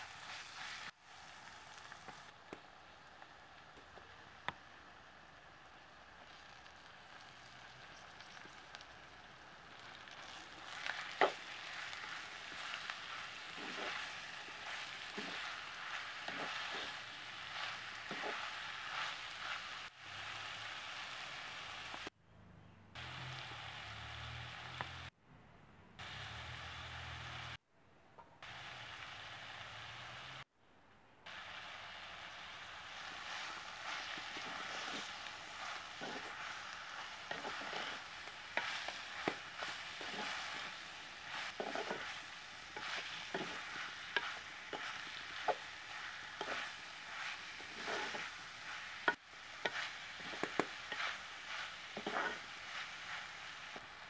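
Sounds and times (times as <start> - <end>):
vegetables sizzling in a pot: 0.0 - 22.1, 23.0 - 25.1, 26.0 - 27.6, 28.4 - 30.5, 31.3 - 54.0
metal spatula scraping a pot: 10.2 - 19.7, 33.2 - 53.3.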